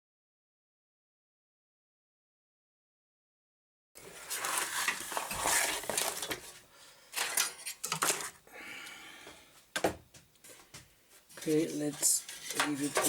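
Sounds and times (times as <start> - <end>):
hard objects clattering on bench: 7.2 - 8.4, 9.8 - 10.9.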